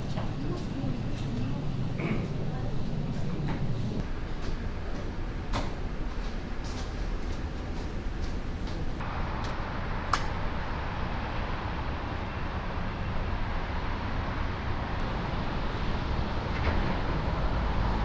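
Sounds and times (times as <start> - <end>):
faint steady hum: 0.0 - 9.0
vehicle rumble and hiss: 0.0 - 18.0.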